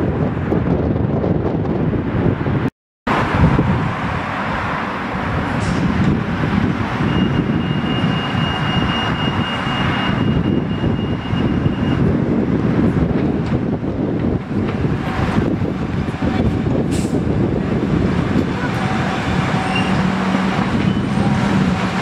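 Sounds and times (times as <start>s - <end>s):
wind buffeting microphone: 0.0s - 22.0s
electric train rumble: 11.5s - 22.0s.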